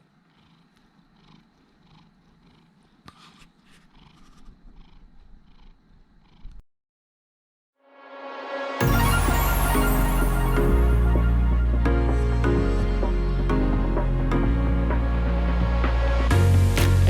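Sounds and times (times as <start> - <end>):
cat purring: 0.0 - 6.6.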